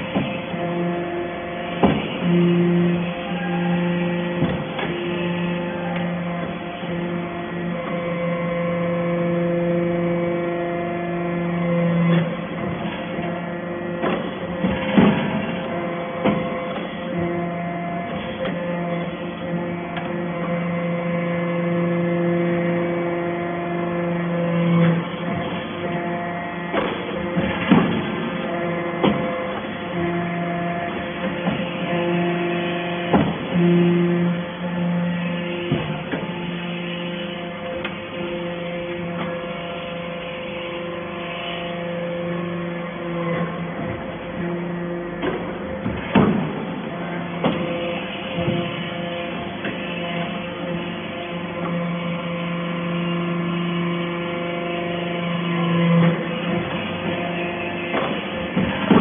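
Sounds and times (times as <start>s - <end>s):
fixed-pitch machine whine: 0.0s - 59.0s
hydraulic baler humming: 0.0s - 59.0s.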